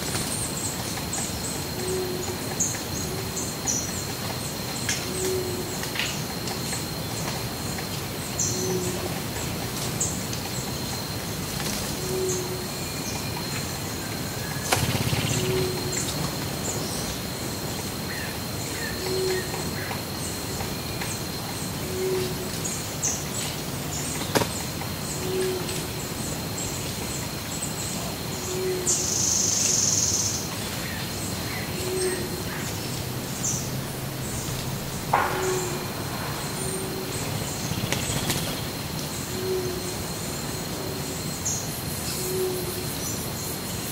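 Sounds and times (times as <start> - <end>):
thin high whine: 31.7 - 40.6
thump: 34.5 - 38.7.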